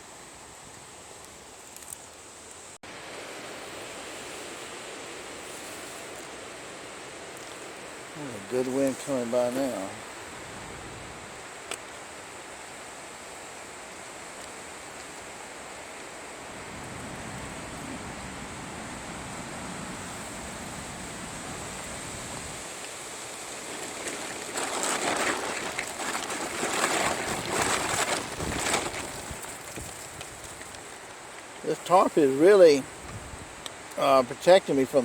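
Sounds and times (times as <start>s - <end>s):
strong wind in treetops: 2.2s - 35.0s
rustling and flapping: 20.1s - 33.6s.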